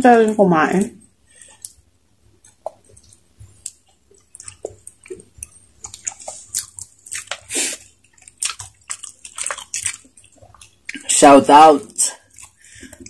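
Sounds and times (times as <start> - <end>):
wet chewing and lip smacks: 1.5 - 1.8, 2.4 - 11.1, 12.1 - 13.0.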